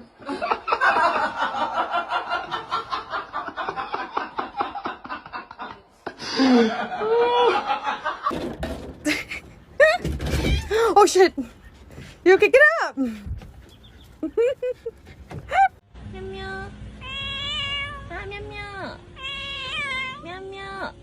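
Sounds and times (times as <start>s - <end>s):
breathy laughter: 0.2s - 8.3s, 14.2s - 15.8s.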